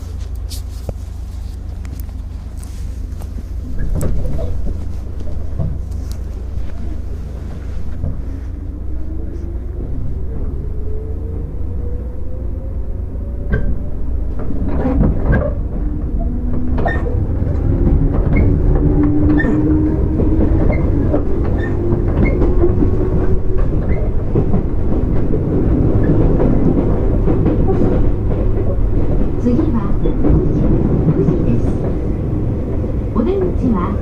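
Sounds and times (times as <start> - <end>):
train rumble: 0.0 - 34.0
wheels clacking over rail joints: 13.5 - 33.9.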